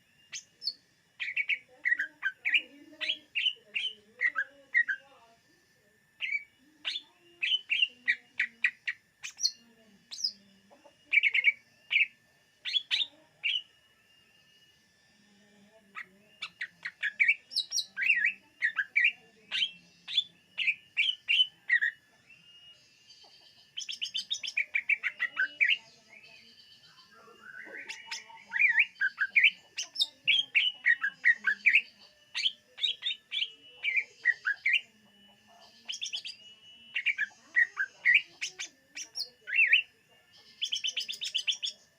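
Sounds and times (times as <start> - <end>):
bird chirping and whistling: 6.2 - 8.0, 23.8 - 25.8, 35.9 - 39.9, 40.5 - 41.8.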